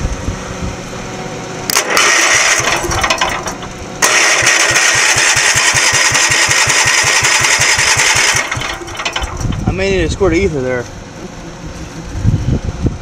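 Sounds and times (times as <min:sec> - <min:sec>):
generator engine starting: 0:01.6 - 0:10.0.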